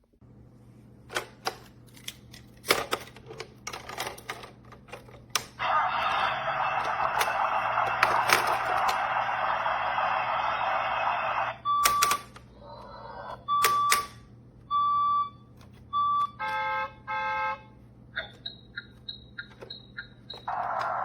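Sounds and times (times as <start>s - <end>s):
dense electronic noise: 5.6s - 13.5s, 16.2s - 21.0s
horn-like honks: 16.3s - 17.8s
short electronic beeps: 18.2s - 20.6s.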